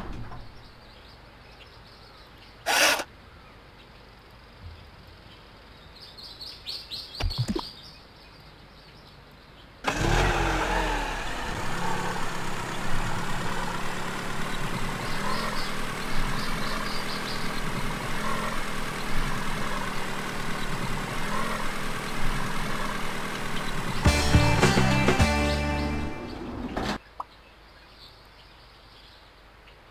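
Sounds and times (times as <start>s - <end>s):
toy electronic engine sound: 2.7s - 3.1s.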